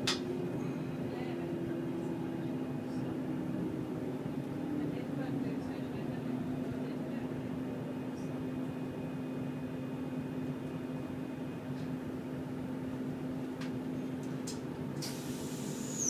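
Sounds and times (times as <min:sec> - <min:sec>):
train carriage hum: 0:00.0 - 0:16.0.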